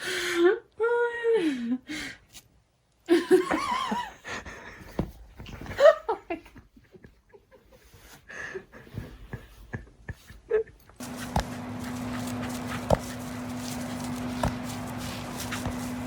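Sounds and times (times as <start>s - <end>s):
person laughing: 8.7s - 11.0s.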